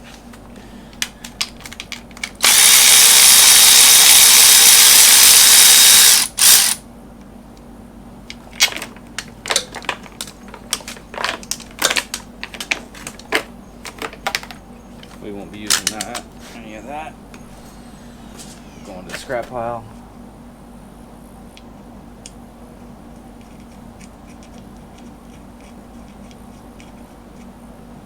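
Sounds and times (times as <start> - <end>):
power driver whining: 0.9 - 6.8.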